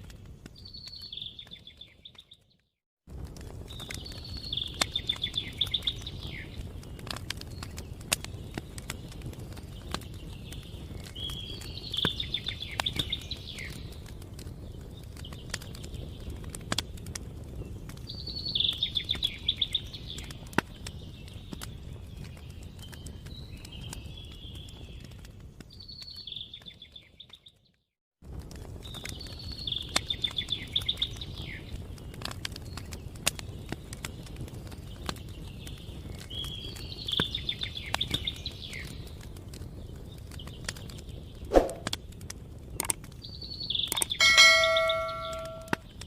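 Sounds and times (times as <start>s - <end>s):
bell-like ding: 44.2s - 45.8s.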